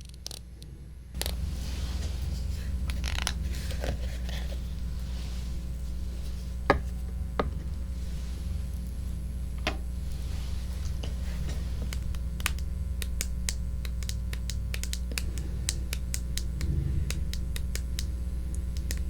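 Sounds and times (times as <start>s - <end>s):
low hum: 0.0s - 19.0s
soft scratching and rubbing: 1.2s - 12.9s.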